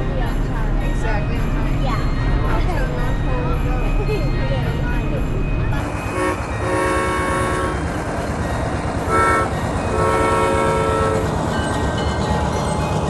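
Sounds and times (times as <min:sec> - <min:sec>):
tractor engine rumble: 0:00.0 - 0:13.0
train horn blasts: 0:05.9 - 0:08.1, 0:09.0 - 0:11.4.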